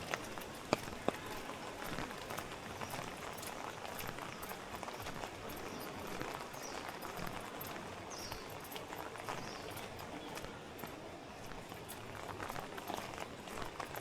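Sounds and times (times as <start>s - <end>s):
footsteps on wet pavement: 0.0s - 14.0s.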